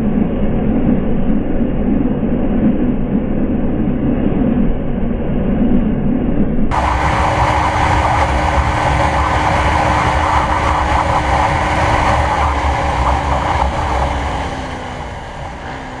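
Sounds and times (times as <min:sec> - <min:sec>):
motorcycle engine riding: 0:06.7 - 0:16.0.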